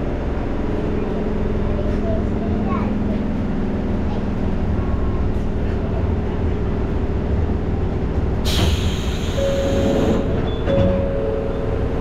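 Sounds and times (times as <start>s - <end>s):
electric train rumble: 0.0s - 12.0s
hiss of air: 8.5s - 10.2s.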